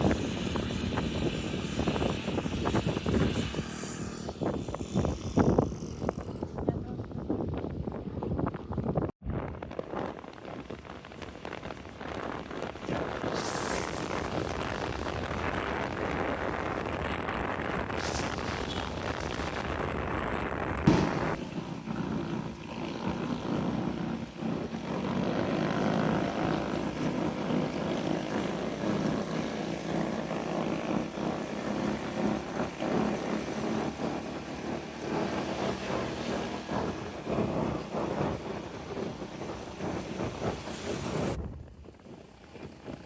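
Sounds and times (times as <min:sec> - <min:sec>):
small motorcycle engine running: 0:00.0 - 0:08.0, 0:09.7 - 0:43.0
rushing noise: 0:12.0 - 0:21.8.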